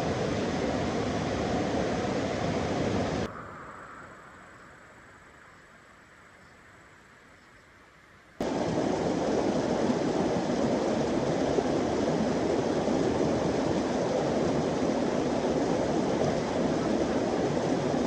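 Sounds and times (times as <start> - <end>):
rushing flowing water: 0.0 - 3.3, 8.4 - 18.0.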